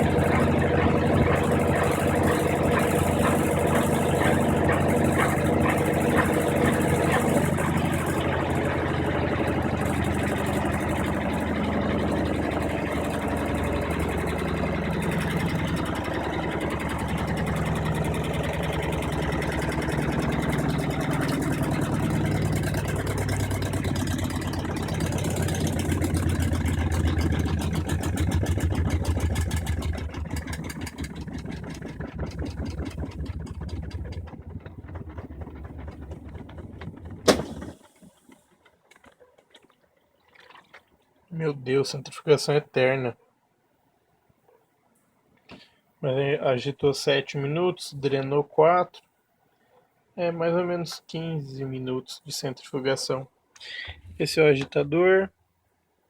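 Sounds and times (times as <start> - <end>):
deep hum: 0.0 - 37.8
washing machine spin cycle hum: 0.0 - 38.7.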